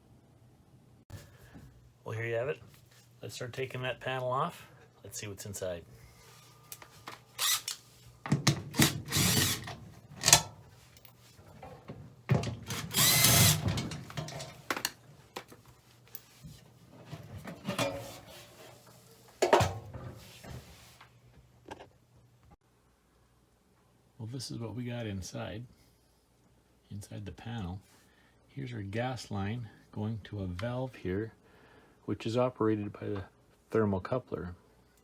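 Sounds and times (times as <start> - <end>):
cordless drill driving screws: 7.4 - 7.8, 8.6 - 10.4, 12.7 - 14.1.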